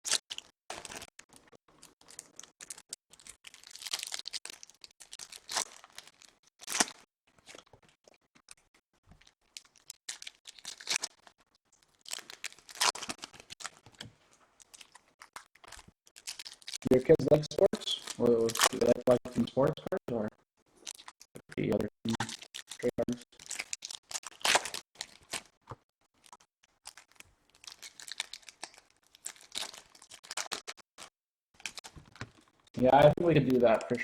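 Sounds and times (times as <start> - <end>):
wrappers tearing and crinkling: 0.0 - 1.1, 1.8 - 7.7, 9.2 - 16.9, 20.8 - 21.2, 22.2 - 32.3.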